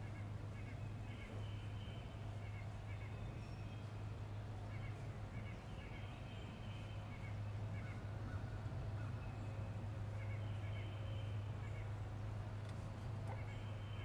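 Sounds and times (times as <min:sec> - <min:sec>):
low steady hum: 0:00.0 - 0:14.0
small birds chirping: 0:00.0 - 0:14.0.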